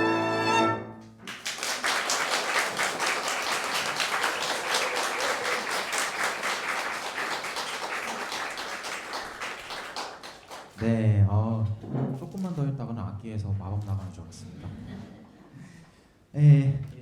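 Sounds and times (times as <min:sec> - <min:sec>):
audience applauding: 0:01.2 - 0:10.8.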